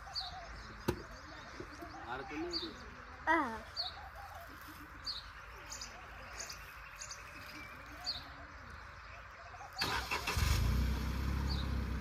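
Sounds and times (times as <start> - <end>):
birds chirping: 0.0 - 12.0
car engine starting and idling: 9.7 - 12.0.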